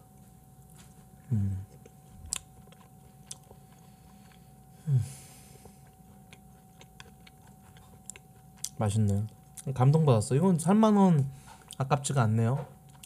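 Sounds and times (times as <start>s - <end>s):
man chewing: 0.1s - 10.1s, 11.4s - 11.8s
man humming low: 1.2s - 1.8s, 4.8s - 5.3s.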